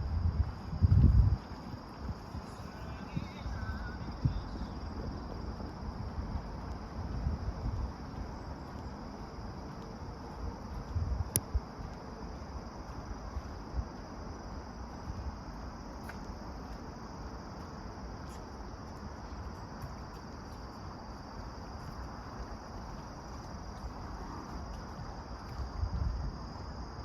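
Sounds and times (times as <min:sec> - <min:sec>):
insects chirring: 0:00.0 - 0:27.0
walking noise: 0:00.0 - 0:27.0
wind rumble: 0:00.0 - 0:27.0.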